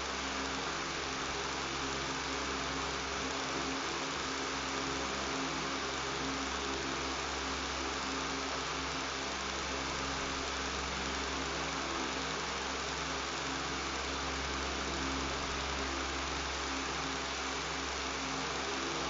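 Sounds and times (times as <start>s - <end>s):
electric fan humming: 0.0s - 19.0s.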